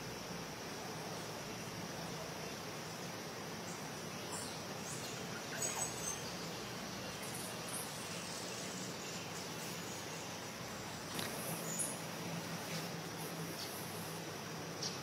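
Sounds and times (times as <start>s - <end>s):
outdoor background hiss: 0.0s - 15.0s
faint bird chirps: 1.1s - 12.9s.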